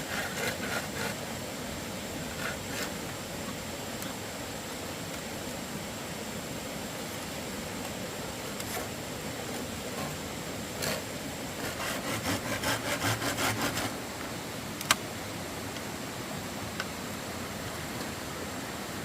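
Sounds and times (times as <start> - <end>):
hand saw cutting bamboo: 0.0 - 1.2, 2.3 - 3.0, 10.8 - 14.0
steady background hiss: 0.0 - 19.0.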